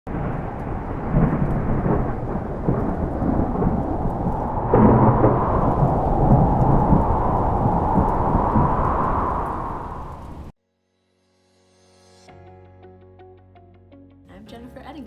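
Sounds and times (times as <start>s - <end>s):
rain: 0.1s - 10.5s
rumbling thunder: 0.1s - 10.5s
thunder crack: 0.1s - 10.5s.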